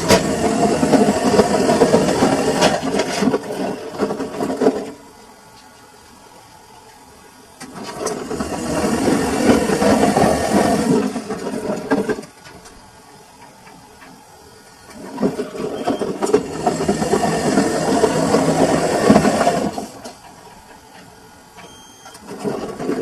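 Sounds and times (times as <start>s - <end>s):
washing machine drum tumbling: 0.0s - 5.0s.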